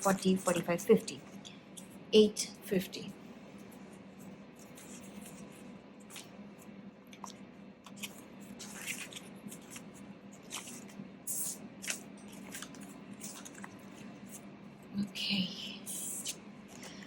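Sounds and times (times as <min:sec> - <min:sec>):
paper rustling: 0:00.0 - 0:02.0, 0:03.6 - 0:14.5
faint steady hum: 0:00.0 - 0:17.0.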